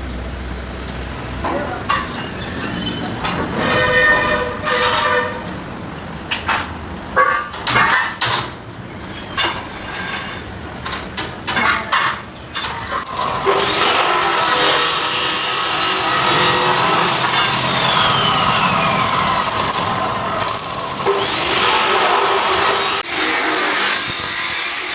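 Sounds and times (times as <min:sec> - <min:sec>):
power tool whining: 0:13.0 - 0:24.9.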